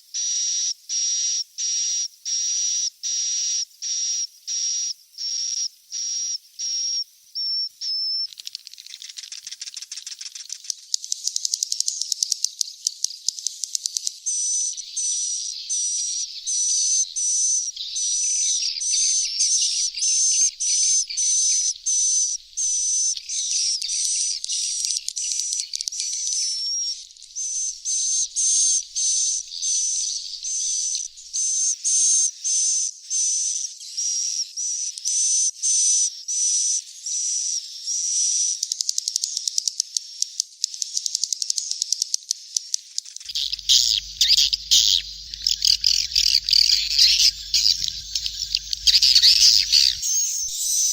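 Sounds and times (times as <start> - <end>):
bird chicks chirping: 43.0 - 50.9
dense bird twittering: 43.2 - 50.9.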